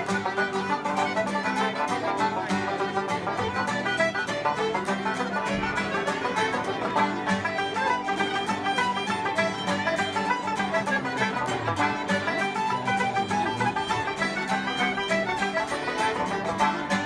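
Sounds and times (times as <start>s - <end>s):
folk band playing dance tune: 0.0s - 17.0s.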